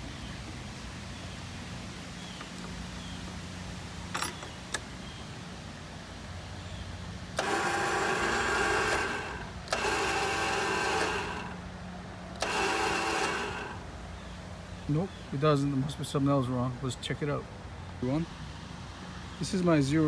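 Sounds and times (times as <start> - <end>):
electric starter cranking engine: 4.1 - 4.9, 7.2 - 14.3.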